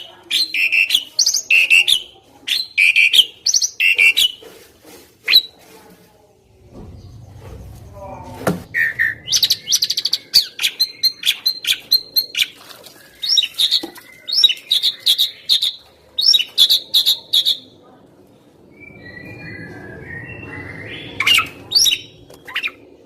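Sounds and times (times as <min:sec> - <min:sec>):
starling chattering and whistling: 0:08.7 - 0:17.7, 0:18.7 - 0:23.0.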